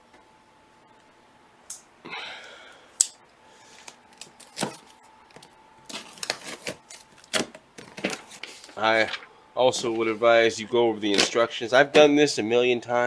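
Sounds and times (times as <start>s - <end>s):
cardboard cracking and rustling: 4.2s - 9.2s.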